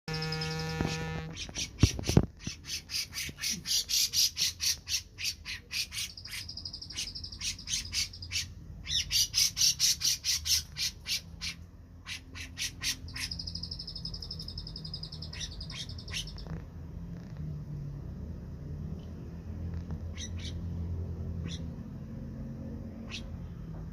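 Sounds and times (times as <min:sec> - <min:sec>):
bird singing high notes: 0:00.1 - 0:01.7
bird high trill: 0:00.1 - 0:16.5.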